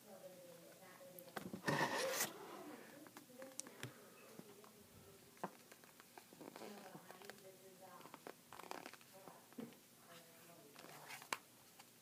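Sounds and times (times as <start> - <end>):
plastic packaging scraping rasp: 1.6 - 2.4.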